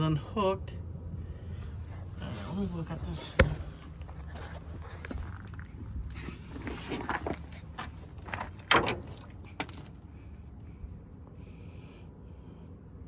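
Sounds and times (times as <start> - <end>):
rustling: 3.1 - 10.6
knocks under truck: 6.8 - 10.1.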